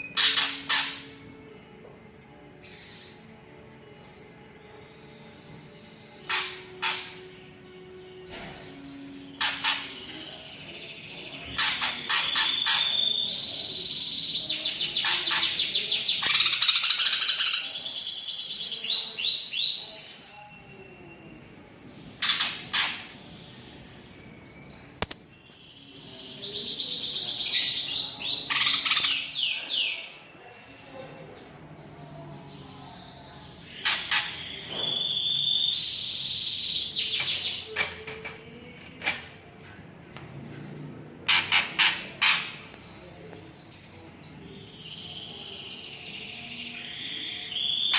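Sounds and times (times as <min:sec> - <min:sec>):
loud bird calls: 0:00.0 - 0:01.2, 0:05.6 - 0:07.5, 0:08.6 - 0:20.1, 0:22.2 - 0:23.8, 0:26.4 - 0:30.1, 0:33.5 - 0:37.8, 0:40.3 - 0:42.8
bird singing varied song: 0:00.0 - 0:47.9.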